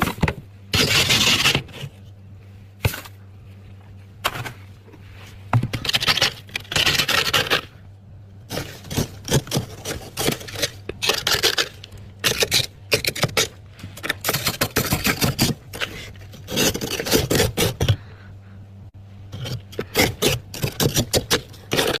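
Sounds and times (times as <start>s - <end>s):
steady low hum: 0.0s - 22.0s
frost being scraped: 0.7s - 2.0s, 5.1s - 7.7s, 8.5s - 17.9s.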